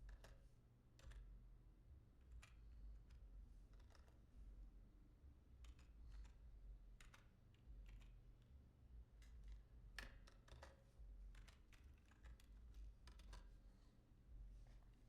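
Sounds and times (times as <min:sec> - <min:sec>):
keyboard typing and mouse clicks: 0:09.2 - 0:13.5
low steady hum: 0:11.0 - 0:15.0.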